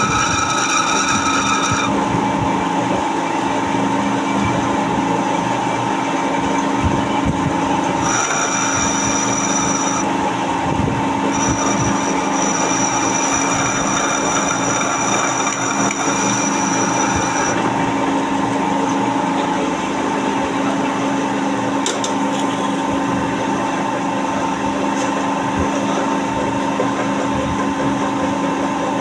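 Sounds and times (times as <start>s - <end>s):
high thin cutting whine: 0.0s - 2.1s, 7.0s - 19.2s
lathe motor hum: 0.0s - 29.0s.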